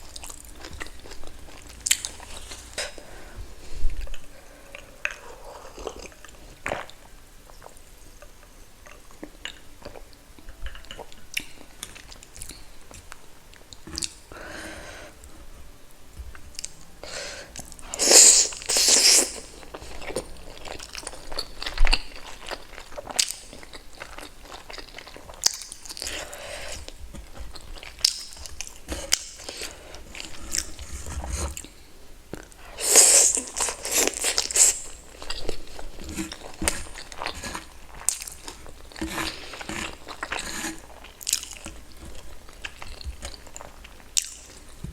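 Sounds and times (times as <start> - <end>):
person chewing and biting food: 32.4 - 44.8.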